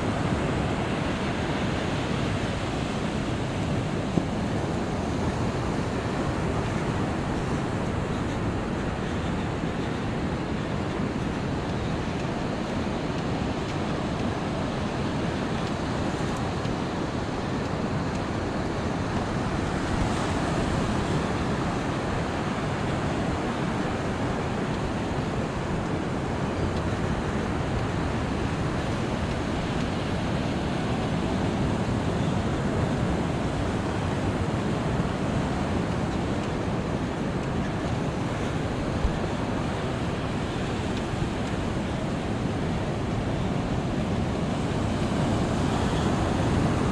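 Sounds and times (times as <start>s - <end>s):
ocean surf on sandy beach: 0.0s - 46.9s.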